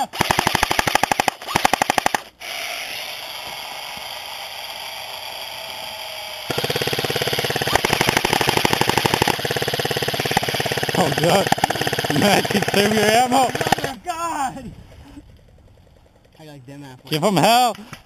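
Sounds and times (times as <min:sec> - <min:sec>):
airsoft rifle full-auto bursts: 0:00.1 - 0:03.0, 0:06.5 - 0:14.0.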